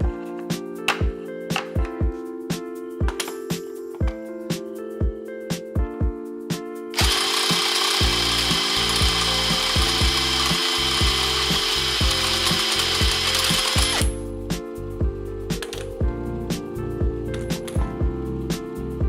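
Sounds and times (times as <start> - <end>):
background music with drum hits: 0.0 - 6.7, 13.0 - 18.7
small motor whirring: 7.0 - 14.1.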